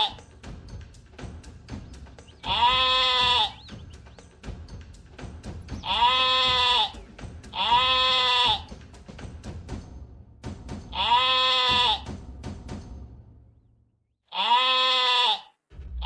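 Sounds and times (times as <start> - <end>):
bleating calls: 0.0 - 0.2, 2.2 - 4.0, 5.7 - 8.7, 10.9 - 12.1, 14.3 - 15.6.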